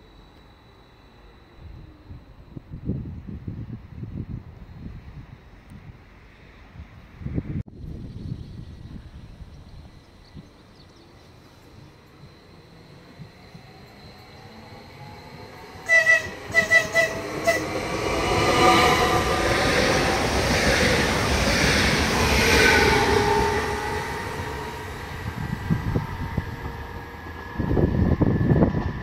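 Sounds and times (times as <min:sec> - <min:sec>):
train motor whine and wheel noise: 0:00.0 - 0:29.0
train horn toots: 0:15.6 - 0:20.0.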